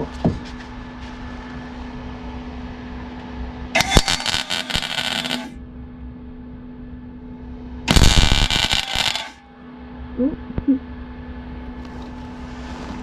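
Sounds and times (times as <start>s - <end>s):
steady hum: 0.0s - 13.0s
crackling welding arc: 3.8s - 5.6s, 7.9s - 9.4s.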